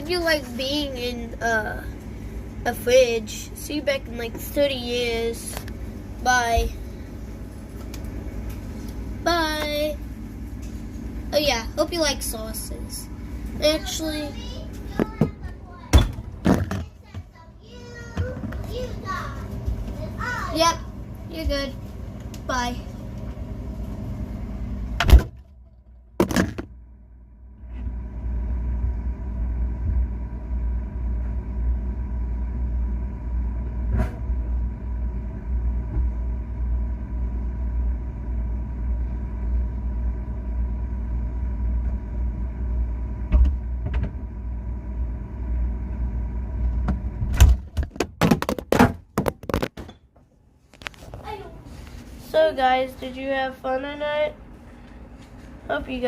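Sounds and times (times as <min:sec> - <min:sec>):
fridge motor humming: 0:00.0 - 0:56.0
refrigerator door shutting: 0:15.9 - 0:16.9, 0:25.0 - 0:25.5, 0:46.8 - 0:49.0
knocks and clatter: 0:46.8 - 0:50.1.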